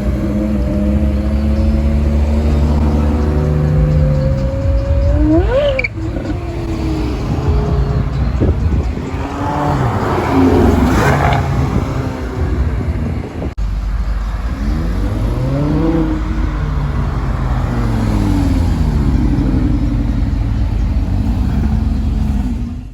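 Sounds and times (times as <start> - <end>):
sports car engines revving: 0.0 - 22.9.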